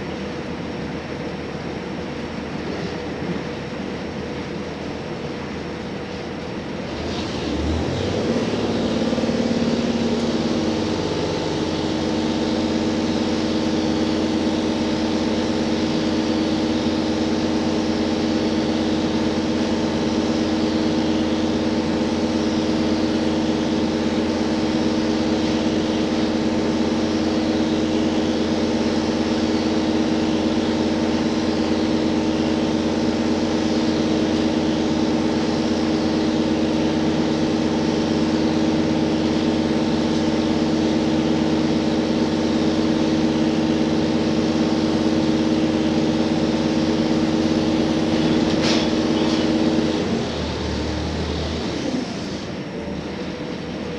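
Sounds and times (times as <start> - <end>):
diesel railcar engine hum: 0.0 - 53.9
train rolling noise: 46.2 - 53.9.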